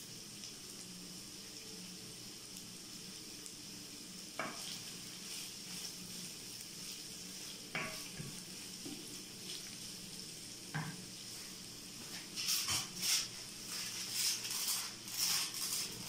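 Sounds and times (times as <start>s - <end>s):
food sizzling in a pan: 0.0s - 16.0s
wooden spoon knocking on pan: 7.7s - 9.0s, 10.7s - 11.0s.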